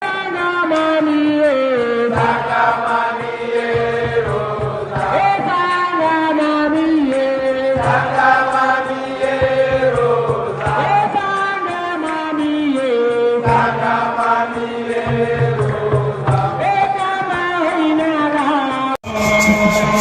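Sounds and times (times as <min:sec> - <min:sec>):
person chanting: 0:17.3 - 0:20.0
low musical accompaniment: 0:19.0 - 0:20.0.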